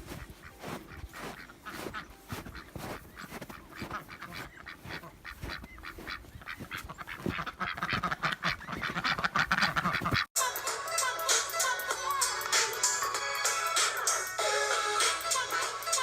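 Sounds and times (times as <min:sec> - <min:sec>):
ducks quacking: 0:00.0 - 0:10.3.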